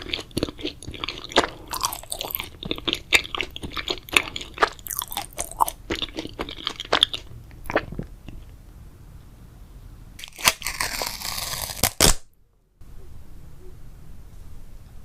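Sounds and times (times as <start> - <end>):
chewing and wet mouth clicks: 0.0 - 8.5.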